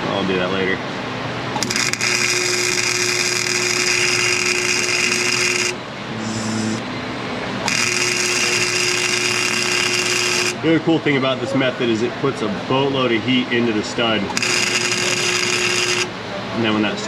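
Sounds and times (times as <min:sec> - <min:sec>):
welder arc buzzing: 0:01.6 - 0:06.9, 0:07.6 - 0:10.6, 0:14.3 - 0:16.2.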